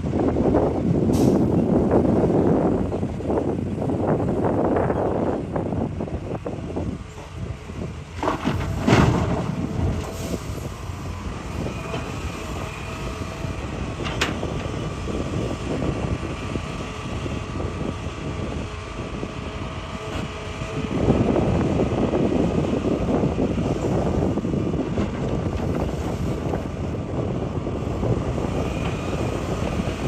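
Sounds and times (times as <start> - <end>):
excavator engine running: 0.0 - 30.0.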